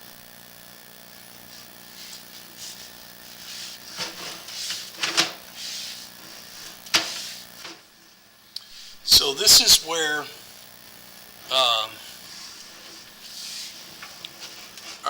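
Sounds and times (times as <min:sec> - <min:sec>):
cable scraping in pipe: 0:01.5 - 0:07.6, 0:12.2 - 0:15.0.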